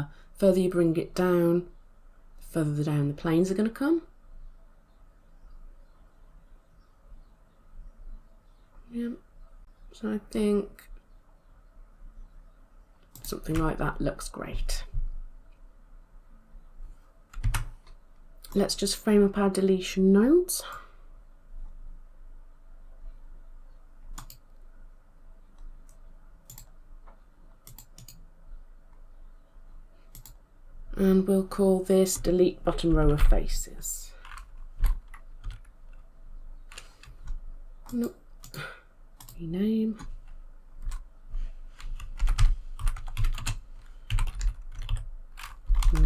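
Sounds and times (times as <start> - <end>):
computer mouse clicks: 13.0 - 13.7, 24.1 - 24.6, 25.6 - 28.3, 30.1 - 30.4, 34.2 - 36.0.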